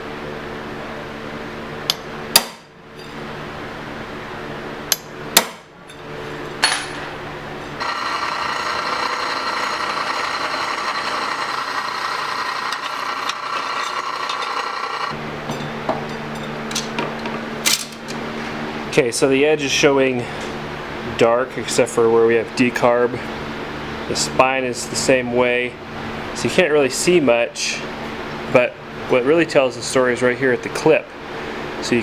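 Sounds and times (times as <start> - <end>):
machine hum: 0.9 - 18.9
sharp metal clanks: 4.9 - 7.2
steel blade grinding on grinder: 7.8 - 15.2.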